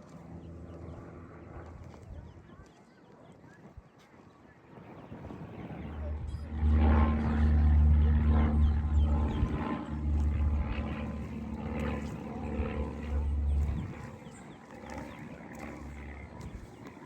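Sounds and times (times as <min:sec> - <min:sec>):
birds chirping: 0:00.0 - 0:17.0
low engine drone: 0:05.4 - 0:17.0.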